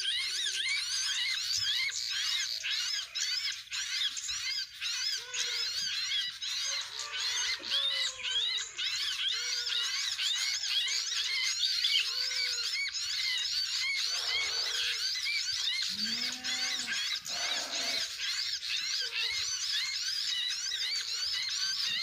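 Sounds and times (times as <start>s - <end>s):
small birds chirping chorus: 0.0s - 22.0s
deeper bird call: 15.9s - 18.2s.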